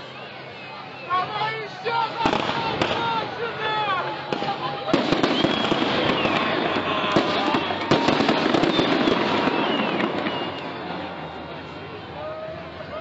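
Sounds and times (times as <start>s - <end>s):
fireworks crackling: 1.9s - 12.1s
firework whistles falling in pitch: 4.3s - 11.4s.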